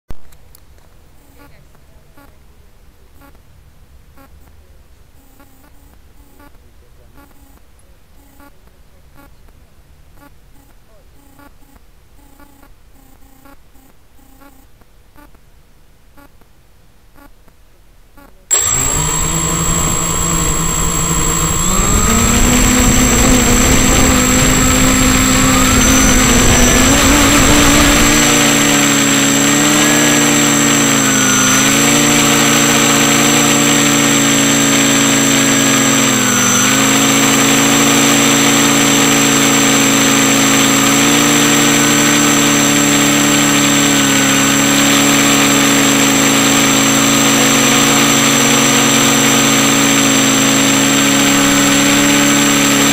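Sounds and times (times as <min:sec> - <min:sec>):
quadcopter propellers whirring: 0:18.5 - 0:52.9
thin high whine: 0:18.5 - 0:52.9.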